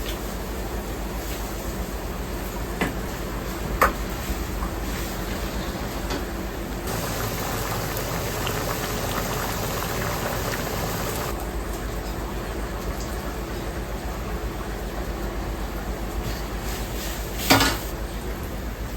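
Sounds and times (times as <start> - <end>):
water boiling with bubbling hiss: 6.8 - 18.9.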